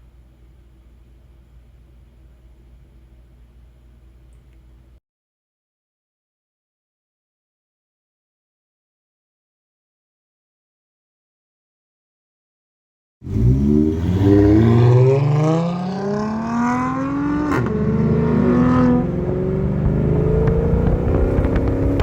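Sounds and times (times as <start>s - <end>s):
car engine accelerating hard: 13.2s - 22.0s.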